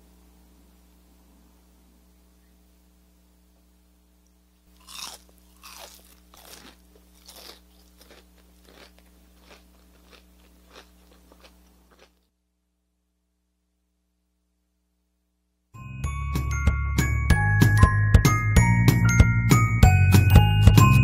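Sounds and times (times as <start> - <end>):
biting and chewing crunchy food: 4.6 - 12.3.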